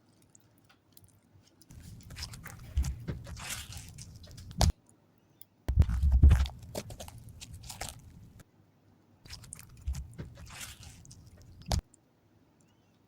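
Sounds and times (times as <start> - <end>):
slime squished by hand: 1.7 - 4.7, 5.7 - 8.4, 9.3 - 11.8.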